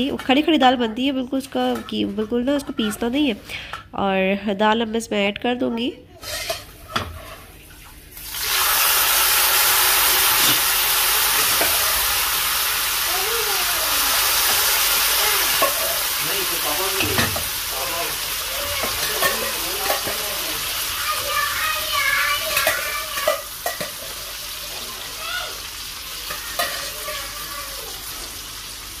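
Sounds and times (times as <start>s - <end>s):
lentils sizzling in hot oil: 6.2s - 29.0s
utensil knocking on pan: 17.0s - 17.6s.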